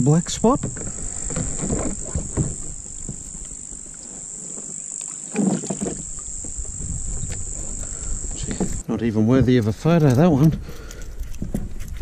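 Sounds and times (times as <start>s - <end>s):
insects droning: 0.0s - 8.9s
knocks and handling on a kayak: 0.4s - 4.7s, 5.3s - 12.0s.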